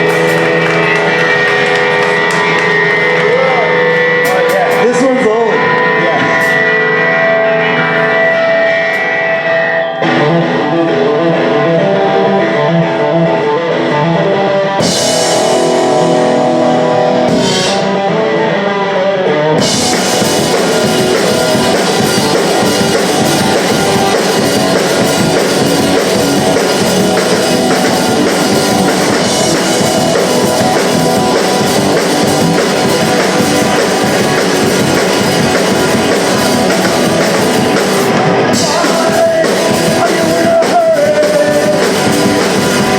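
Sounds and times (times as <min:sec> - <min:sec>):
electric guitar picked: 0:00.0 - 0:42.9
punk rock band playing: 0:00.0 - 0:42.9.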